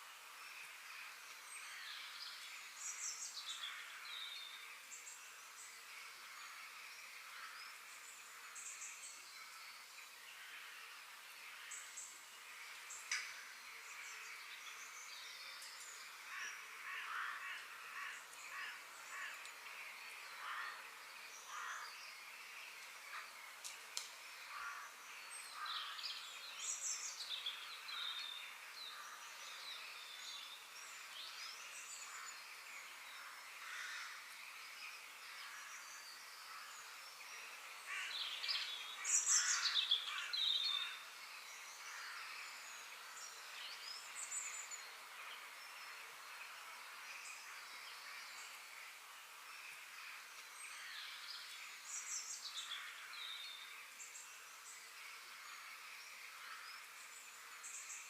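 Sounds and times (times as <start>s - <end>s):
faint steady hiss: 0.0s - 58.0s
birds chirping and calling: 37.8s - 45.5s.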